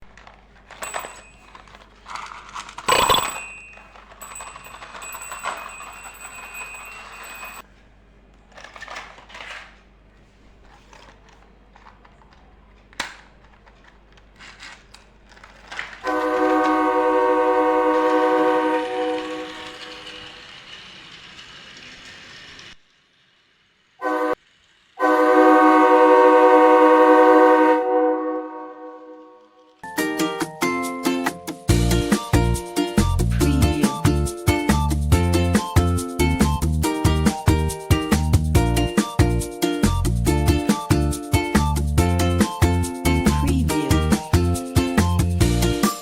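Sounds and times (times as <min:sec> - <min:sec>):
loud horn: 0:16.0 - 0:19.9, 0:24.0 - 0:24.4, 0:25.0 - 0:29.4.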